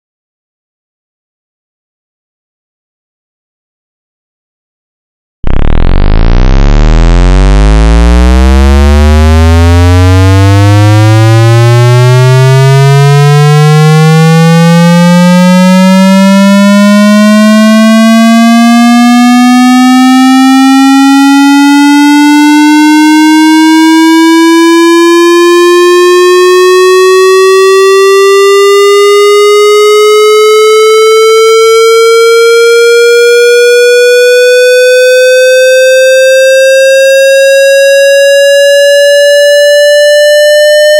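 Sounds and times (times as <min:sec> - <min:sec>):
synthesized tone gliding upward: 0:05.4 - 0:40.9.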